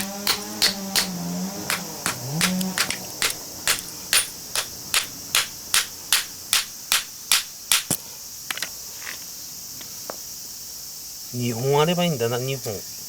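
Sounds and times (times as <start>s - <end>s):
hammer striking steel chisel: 0.0s - 8.0s
insect chirring: 0.0s - 13.0s.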